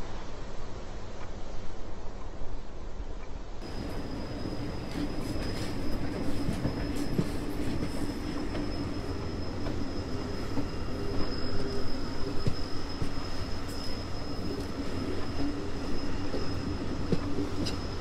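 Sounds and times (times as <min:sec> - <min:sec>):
train rumbling: 0:00.0 - 0:18.0
faint clicks from rails: 0:01.1 - 0:03.6
high whine: 0:03.6 - 0:18.0.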